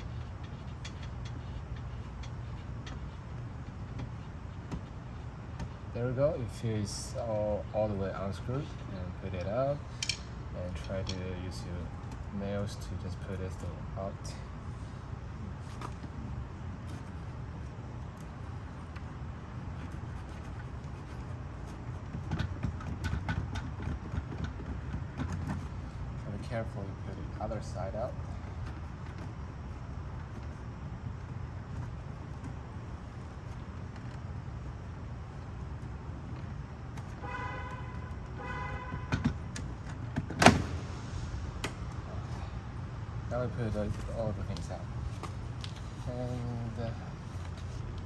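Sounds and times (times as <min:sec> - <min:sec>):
steady low rumble: 0:40.6 - 0:48.0.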